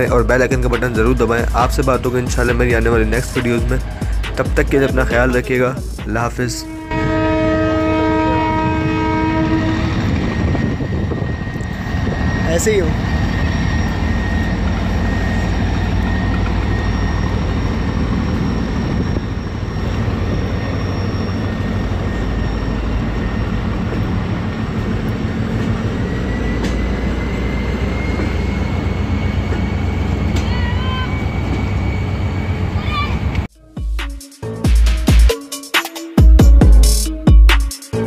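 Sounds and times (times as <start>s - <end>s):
diesel train rumbling: 0.0s - 35.3s
thin high whine: 6.5s - 33.7s.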